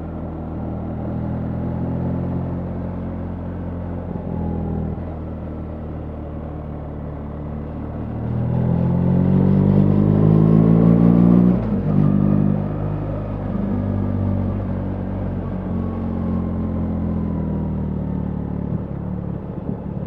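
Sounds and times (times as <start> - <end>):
motorcycle engine accelerating: 0.6 - 20.0.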